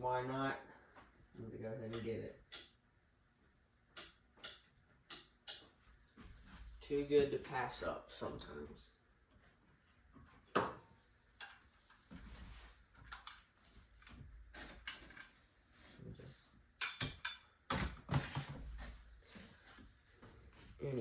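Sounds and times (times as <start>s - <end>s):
sharp clicks and knocks: 3.9s - 6.2s.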